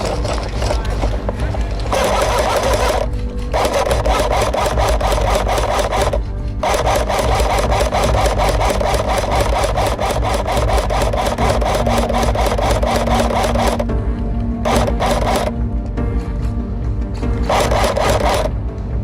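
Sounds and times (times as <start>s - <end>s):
background music with fast pulse: 0.0s - 19.0s.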